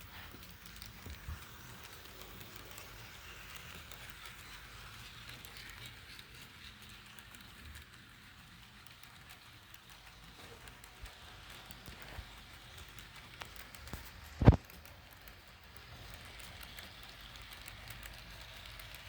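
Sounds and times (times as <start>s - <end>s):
model train rolling on track: 0.0s - 19.0s.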